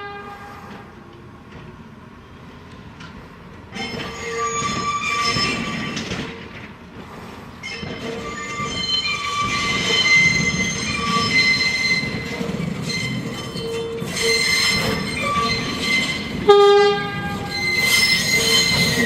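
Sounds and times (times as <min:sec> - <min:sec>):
subway wheels squealing: 0:03.7 - 0:06.8, 0:07.4 - 0:19.0.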